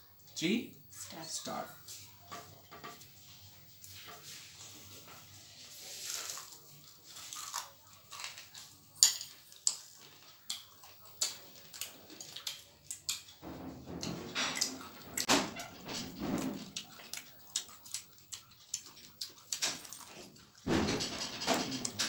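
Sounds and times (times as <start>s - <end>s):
people crunching and chewing food: 1.0s - 22.0s.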